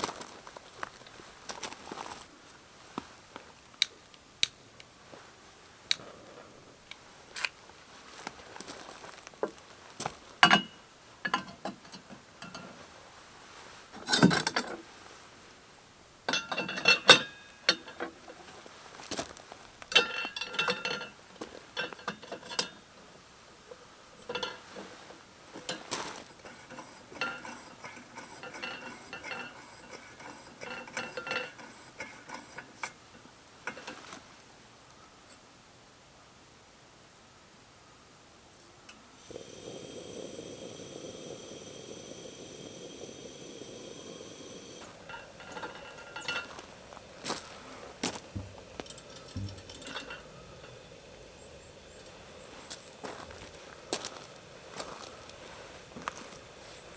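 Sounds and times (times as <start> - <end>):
metal cookware clinking: 10.4 - 12.7, 16.3 - 18.0, 19.9 - 22.8, 24.2 - 24.7, 25.7 - 33.0, 44.7 - 46.9, 48.4 - 50.9.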